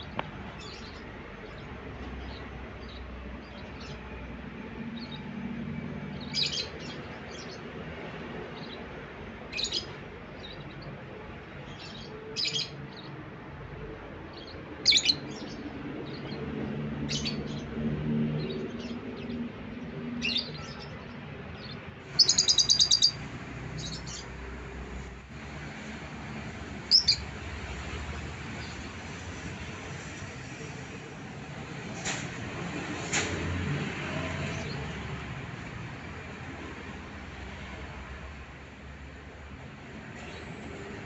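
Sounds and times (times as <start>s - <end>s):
lovebird chirping: 22.1s - 23.2s, 26.9s - 27.2s.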